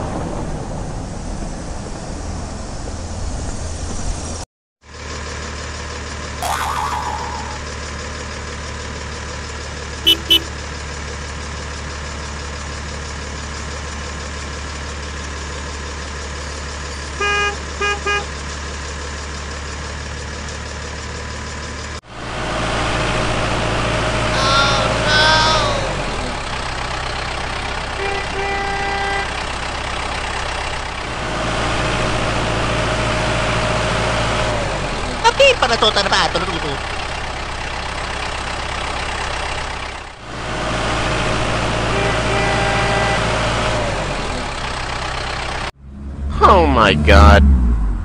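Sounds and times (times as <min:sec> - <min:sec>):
vehicle engine idling: 0:07.6 - 0:48.0
short horn beeps: 0:10.1 - 0:10.5.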